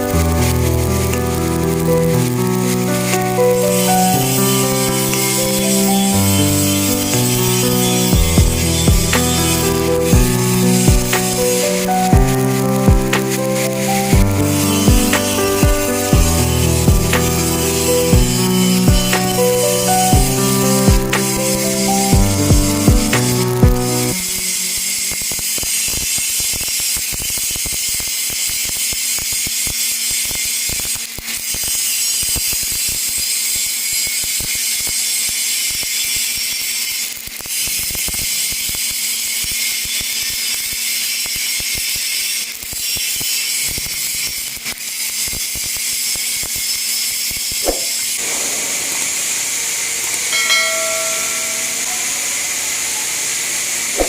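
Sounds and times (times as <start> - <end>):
welding arc crackling hiss: 0.0 - 54.0
short tonal squeal: 3.4 - 10.1, 14.5 - 22.1, 48.2 - 52.5.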